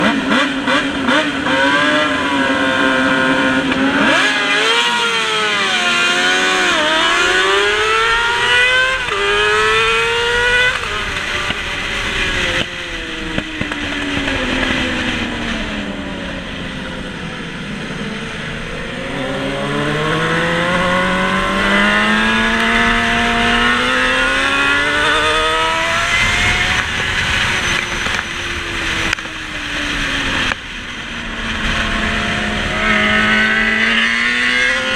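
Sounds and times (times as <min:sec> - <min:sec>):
racing motorcycle engine revving: 0:00.0 - 0:34.9.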